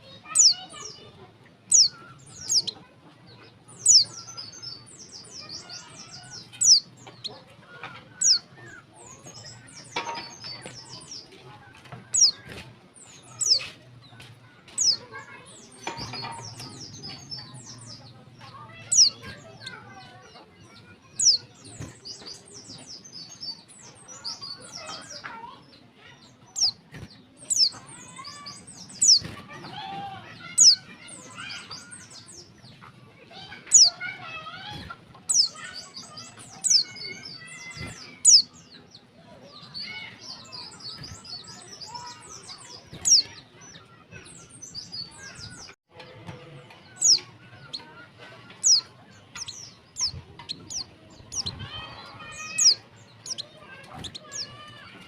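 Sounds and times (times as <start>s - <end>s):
rapid bird twittering: 1.7s - 2.8s, 3.8s - 7.3s, 26.4s - 29.4s, 35.3s - 38.8s, 39.6s - 45.7s, 48.6s - 54.9s.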